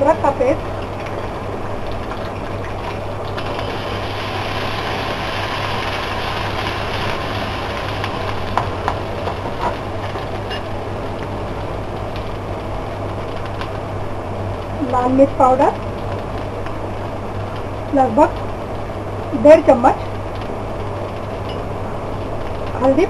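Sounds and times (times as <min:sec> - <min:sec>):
low hum: 0:00.0 - 0:23.0
paste sizzling in oil: 0:03.4 - 0:10.8.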